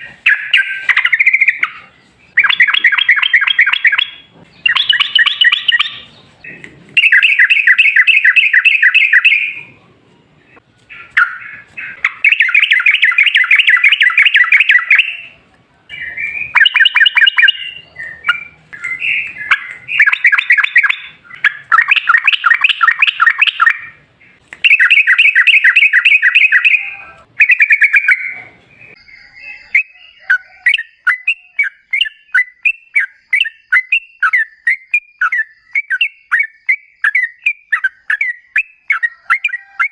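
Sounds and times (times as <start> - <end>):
bulbul singing chattering notes: 0.0 - 9.7, 10.9 - 39.9.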